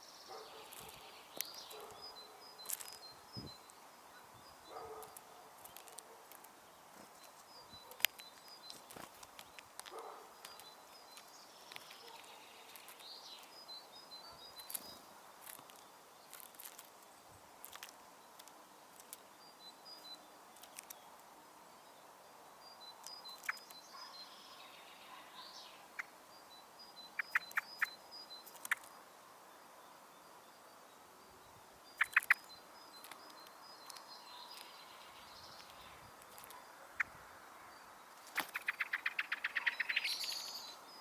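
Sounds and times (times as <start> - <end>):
distant bird song: 0.0 - 41.0
birds pecking seed: 0.4 - 3.8, 4.6 - 21.4, 22.9 - 25.0, 27.1 - 29.0, 32.0 - 37.2, 38.1 - 40.3.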